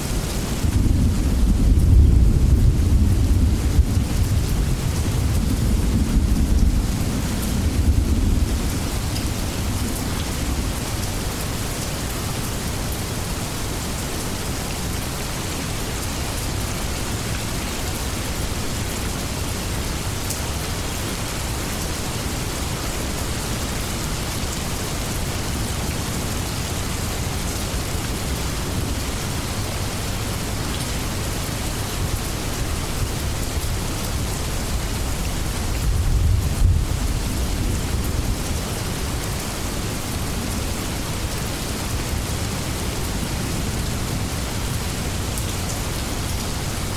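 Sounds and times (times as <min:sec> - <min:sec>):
heavy rain falling: 0:00.0 - 0:46.9
thunder rumbling: 0:00.5 - 0:10.9, 0:33.6 - 0:39.1.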